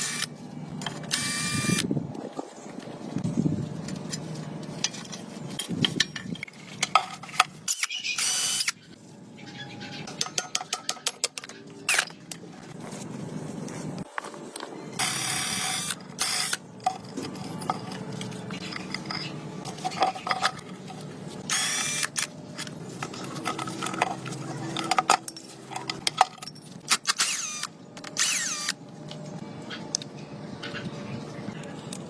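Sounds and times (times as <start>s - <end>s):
power tool whirring: 0.0s - 0.3s, 1.1s - 1.9s, 7.7s - 8.8s, 15.0s - 16.6s, 21.5s - 22.3s, 27.0s - 28.8s
metal tools clinking: 4.0s - 8.0s, 16.8s - 20.9s, 22.2s - 26.9s.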